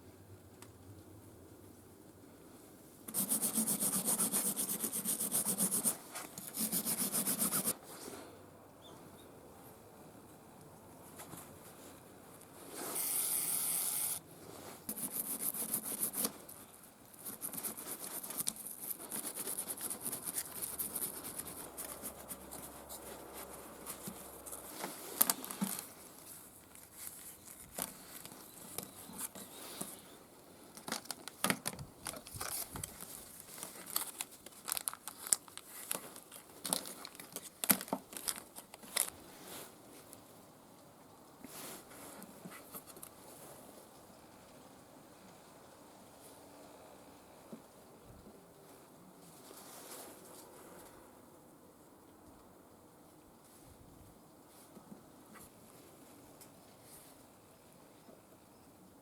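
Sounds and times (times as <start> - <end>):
clicks scrapes and rubbing: 3.1 - 7.8, 14.9 - 30.0.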